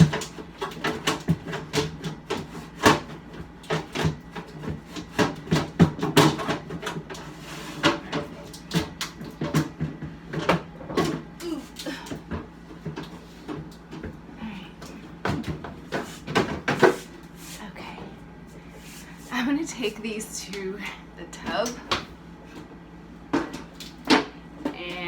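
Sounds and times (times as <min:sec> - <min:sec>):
plastic bins knocking and clattering: 0:00.0 - 0:14.2, 0:15.2 - 0:17.1.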